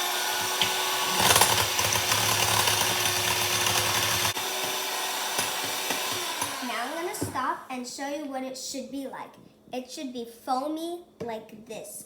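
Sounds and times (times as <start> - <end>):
electric mixer beating eggs: 0.0 - 7.4.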